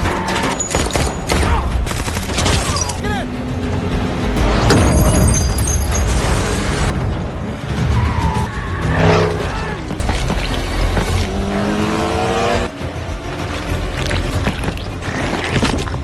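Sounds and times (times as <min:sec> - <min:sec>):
car engines revving: 0:06.1 - 0:15.5.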